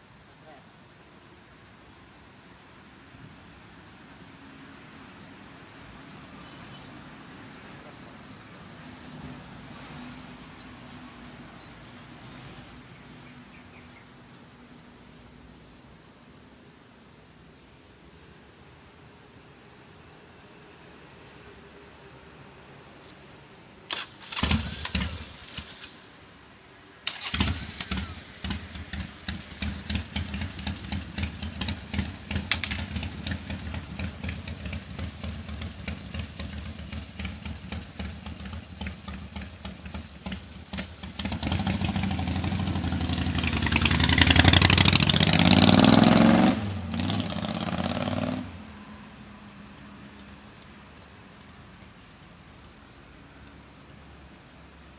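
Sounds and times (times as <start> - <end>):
motorcycle engine starting and revving: 23.9 - 26.1, 27.0 - 48.8.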